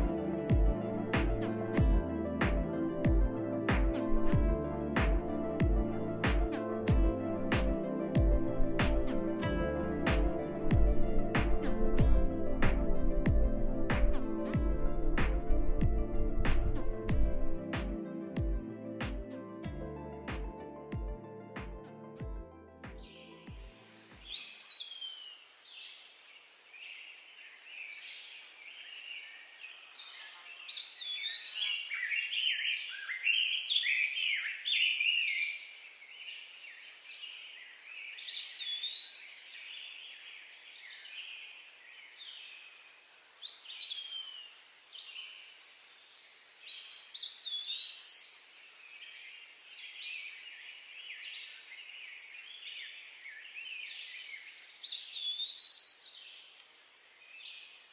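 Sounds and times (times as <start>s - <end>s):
faint outdoor hiss: 0.0s - 22.1s, 23.0s - 57.9s
birds singing: 23.0s - 57.9s.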